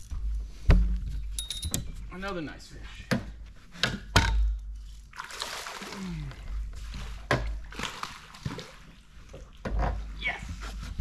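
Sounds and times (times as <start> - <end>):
water splashing beside boat: 4.8 - 9.7.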